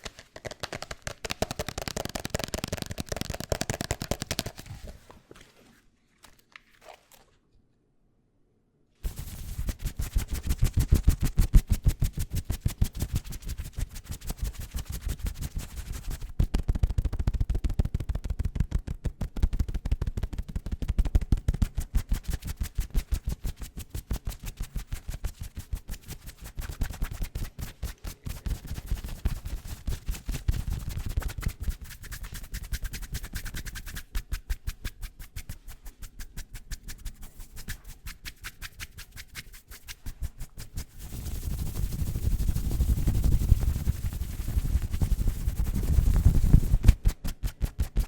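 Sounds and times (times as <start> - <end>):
fast dull tapping: 0.4 - 4.6.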